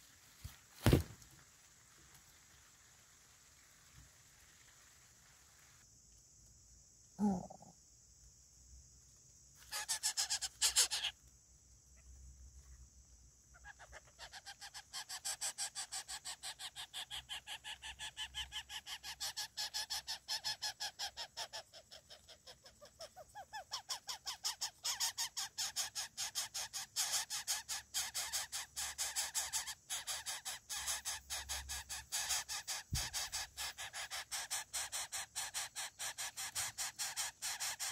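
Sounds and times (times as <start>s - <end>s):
coucal chick begging calls: 9.6s - 11.2s, 13.6s - 37.9s.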